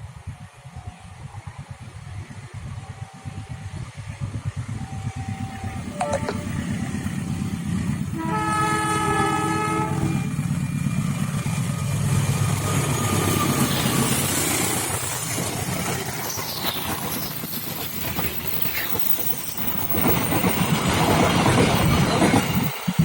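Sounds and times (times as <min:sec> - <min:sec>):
train rumbling past: 0:00.0 - 0:23.0
train horn: 0:05.9 - 0:07.1, 0:08.1 - 0:10.3.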